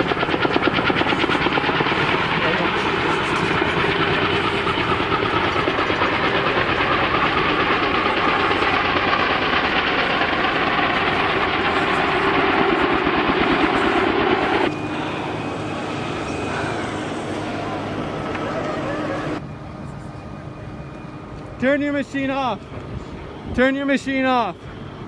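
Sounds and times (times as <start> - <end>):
helicopter rotor chop: 0.0 - 19.4
helicopter turbine engine roar: 0.0 - 25.0.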